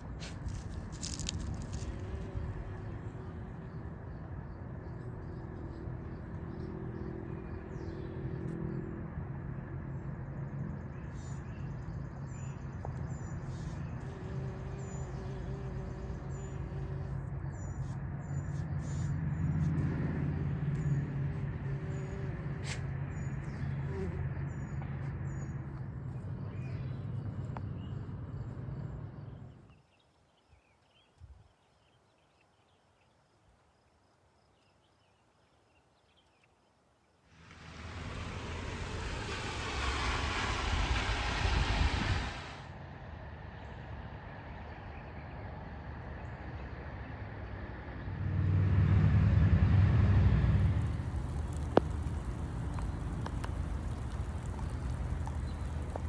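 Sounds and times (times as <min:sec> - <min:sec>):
small birds chirping: 0:00.0 - 0:08.9, 0:10.7 - 0:33.2, 0:50.6 - 0:56.0
low motor hum: 0:37.4 - 0:42.6, 0:46.2 - 0:56.0.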